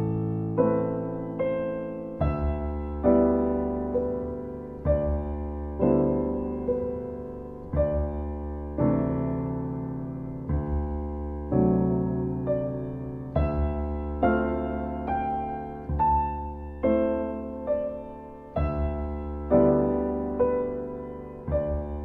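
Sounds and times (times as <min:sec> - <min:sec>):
slow gentle piano music: 0:00.0 - 0:22.0.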